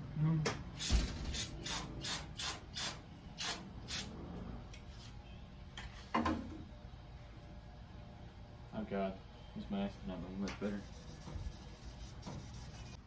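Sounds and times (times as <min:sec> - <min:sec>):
aerosol spray hissing bursts: 0:00.8 - 0:04.1.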